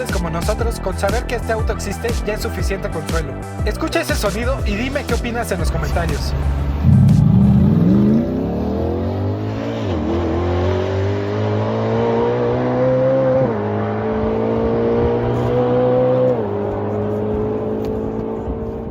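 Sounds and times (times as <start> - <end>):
car engine accelerating through gears: 5.6 - 18.9.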